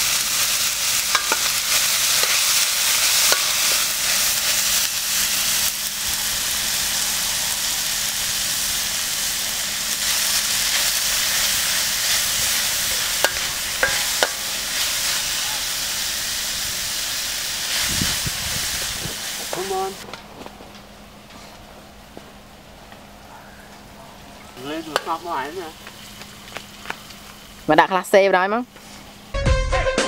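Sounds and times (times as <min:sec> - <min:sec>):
meat sizzling in hot oil: 0:00.0 - 0:20.0, 0:24.6 - 0:27.7
metal spatula scraping pan: 0:12.9 - 0:15.2.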